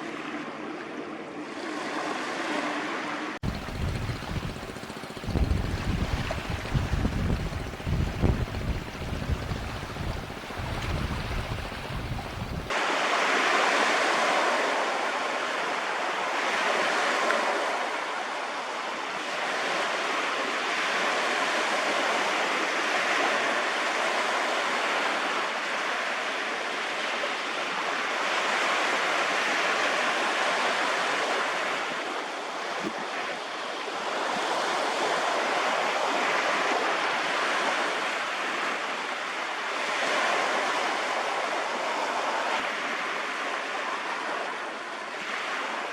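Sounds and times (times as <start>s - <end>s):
waves breaking: 0.0s - 45.9s
wind rumble on microphone: 3.4s - 12.7s.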